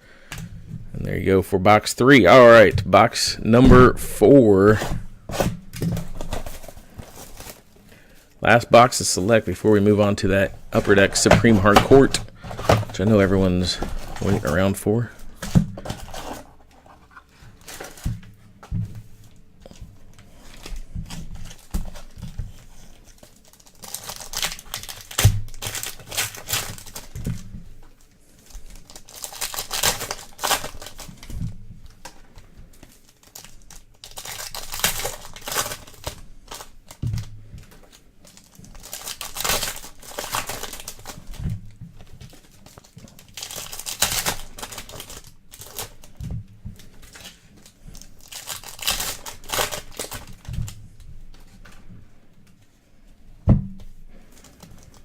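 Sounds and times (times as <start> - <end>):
card wrappers torn and crinkled: 3.5 - 16.5, 17.6 - 18.1, 20.4 - 27.5, 28.4 - 31.4, 32.8 - 37.3, 37.9 - 41.4, 42.3 - 46.3, 47.0 - 51.0.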